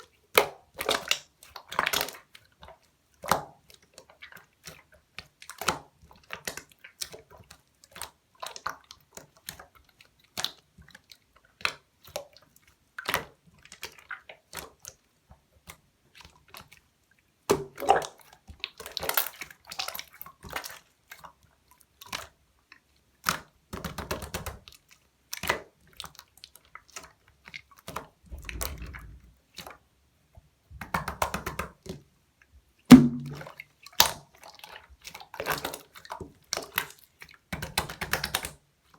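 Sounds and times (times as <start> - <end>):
loud slime snap: 32.9 - 33.4.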